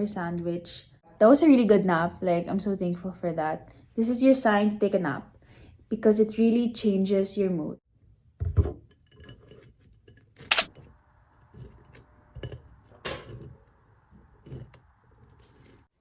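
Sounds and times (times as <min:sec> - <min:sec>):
thud: 0:08.4 - 0:08.8
dishes and utensils clinking: 0:08.5 - 0:10.9, 0:11.5 - 0:13.6
sharp clicks: 0:10.5 - 0:10.7.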